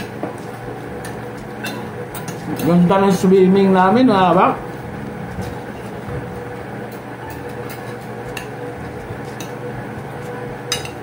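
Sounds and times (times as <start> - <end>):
cutlery clinking on plates: 1.6 - 2.8, 10.6 - 11.0.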